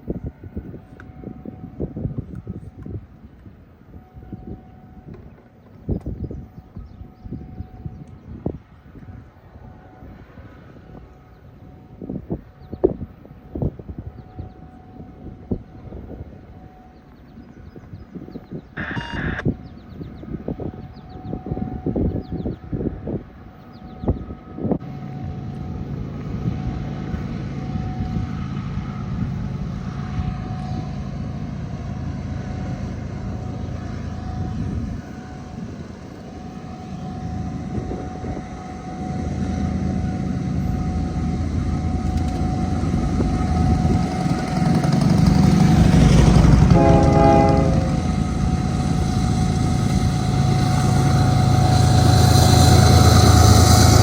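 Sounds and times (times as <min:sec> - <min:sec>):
diesel locomotive engines rumbling: 0:00.0 - 0:54.0
locomotive horn blast: 0:18.8 - 0:19.6, 0:29.9 - 0:54.0.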